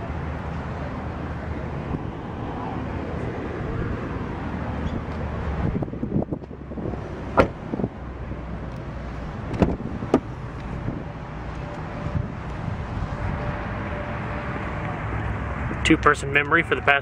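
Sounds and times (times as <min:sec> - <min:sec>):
car door latch clicking: 0:07.3 - 0:07.7, 0:09.4 - 0:10.3.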